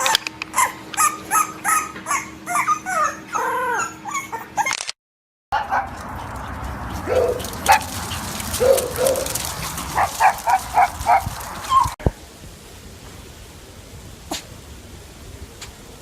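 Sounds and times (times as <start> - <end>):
dog barking: 0.0 - 3.9, 5.6 - 6.0, 7.0 - 7.9, 8.6 - 12.0.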